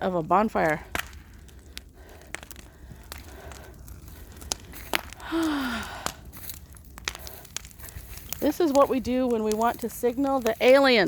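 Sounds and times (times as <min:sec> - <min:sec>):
bonfire crackling: 0:00.0 - 0:11.0.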